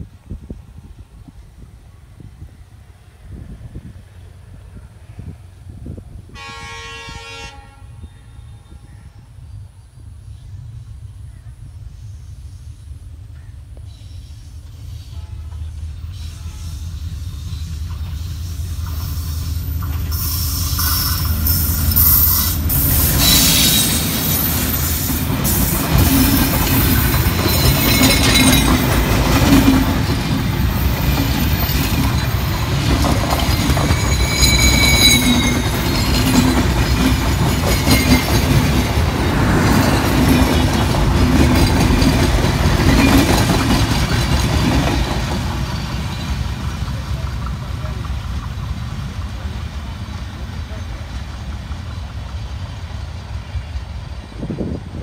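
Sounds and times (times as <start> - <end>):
train rumbling past: 0.0 - 55.0
high wheel squeals: 13.9 - 38.6
wheels clattering over rail joints: 17.7 - 48.9.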